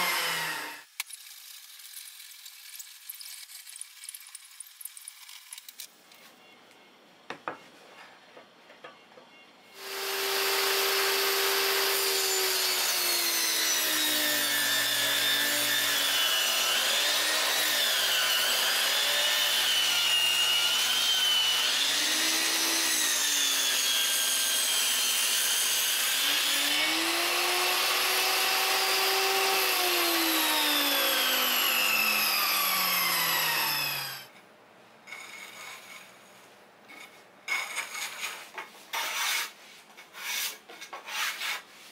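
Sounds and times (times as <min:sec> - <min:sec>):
electric saw cutting wood: 0:00.0 - 0:00.9, 0:09.8 - 0:34.3.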